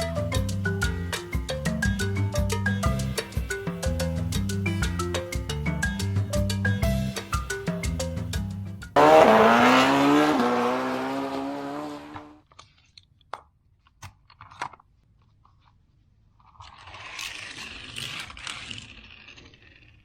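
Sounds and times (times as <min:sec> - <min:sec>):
vehicle engine revving: 0:09.0 - 0:12.4.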